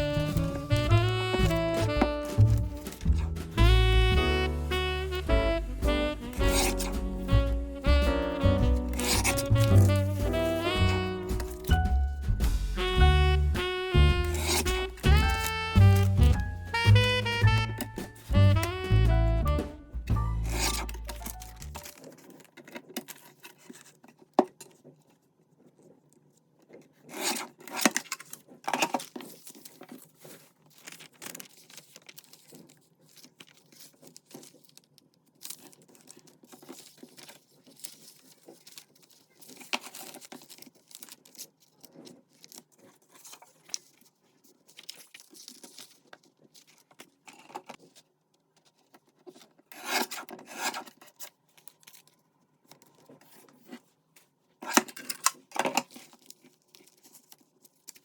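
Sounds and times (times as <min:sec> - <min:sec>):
paper rustling and tearing: 0:00.0 - 0:58.0.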